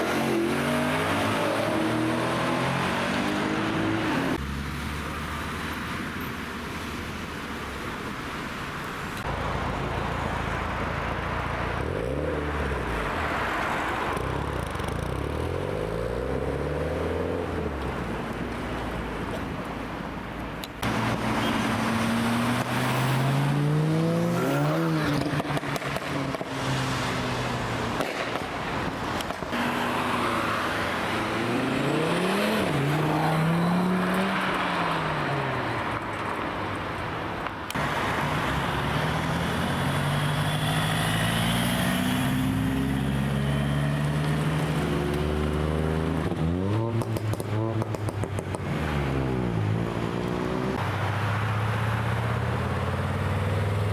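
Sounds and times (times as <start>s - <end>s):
car engines revving past: 0.0s - 5.2s, 20.8s - 36.8s, 37.7s - 53.9s.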